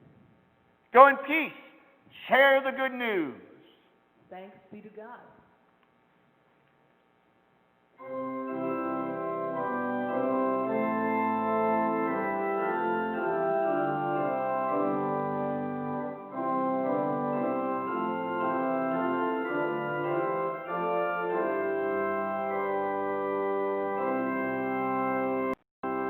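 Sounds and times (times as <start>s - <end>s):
organ playing sustained chords: 8.0s - 26.0s.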